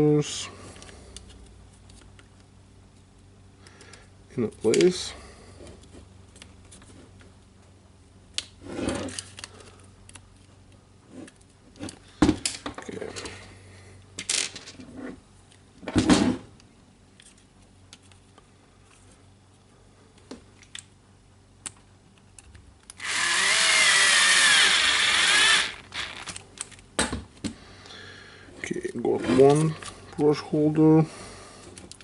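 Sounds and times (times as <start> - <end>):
power driver whining: 22.9 - 26.4.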